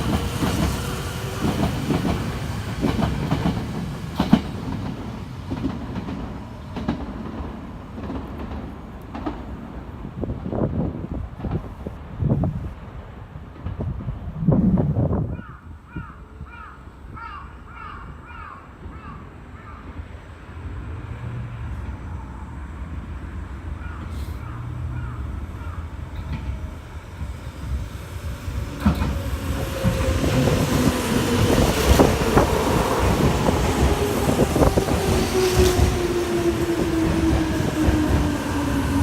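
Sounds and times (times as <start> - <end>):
electric train approaching: 0.0 - 14.8, 18.8 - 39.0
crows cawing: 15.4 - 20.0, 23.8 - 26.2.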